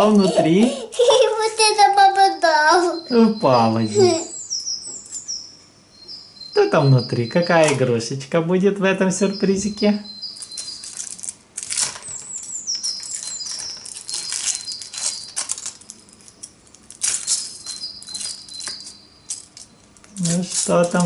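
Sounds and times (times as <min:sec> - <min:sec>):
bird chirping: 0:00.0 - 0:11.3, 0:11.9 - 0:21.0
plastic packaging crinkling: 0:10.3 - 0:21.0.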